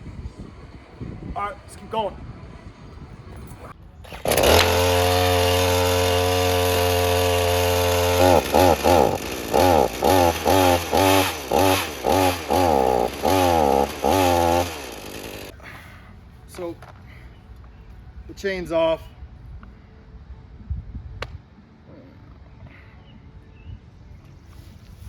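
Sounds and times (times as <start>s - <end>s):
chainsaw running: 4.1s - 15.5s.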